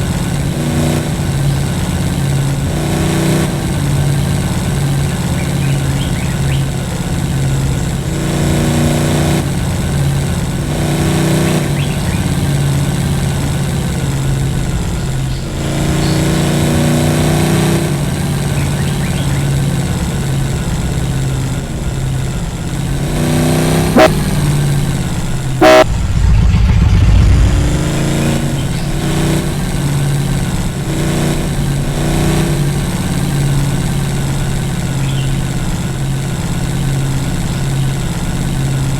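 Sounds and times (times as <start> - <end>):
vehicle engine revving: 0.0 - 38.9
sharp loud bangs: 25.6 - 29.1
short low rumble: 25.6 - 29.1.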